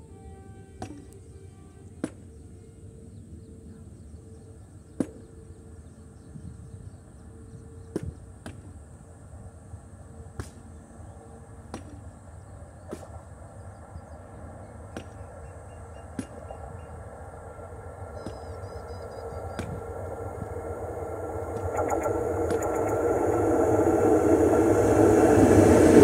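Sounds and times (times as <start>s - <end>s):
distant train rumble: 0.0s - 26.0s.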